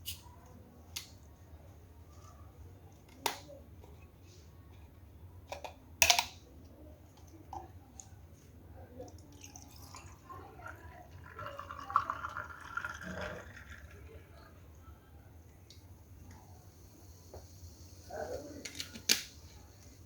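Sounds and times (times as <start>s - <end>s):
liquid dripping and pouring: 9.0s - 14.6s.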